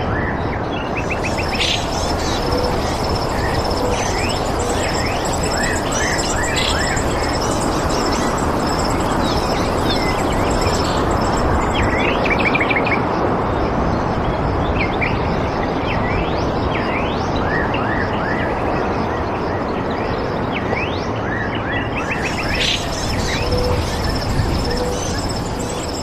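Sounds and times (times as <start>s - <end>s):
steady rushing background noise: 0.0s - 26.0s
birds chirping: 1.0s - 12.5s, 22.0s - 26.0s.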